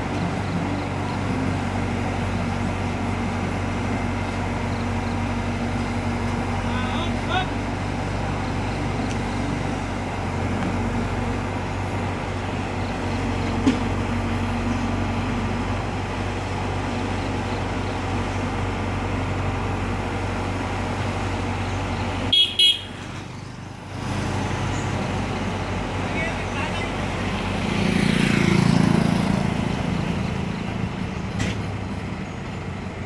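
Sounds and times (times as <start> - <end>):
heavy vehicle engine running: 0.0 - 33.0
horn toots: 22.3 - 23.0.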